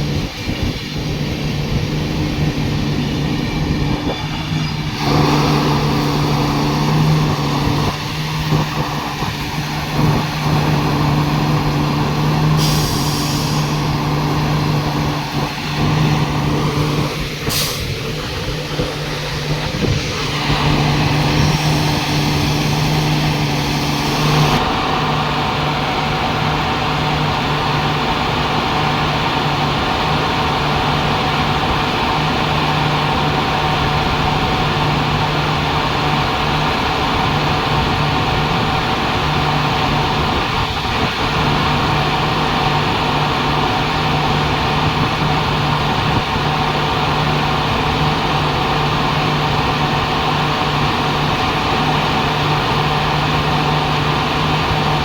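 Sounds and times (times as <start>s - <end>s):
low drone cutting in and out: 0.0s - 31.4s
diesel generator engine running: 0.0s - 55.0s.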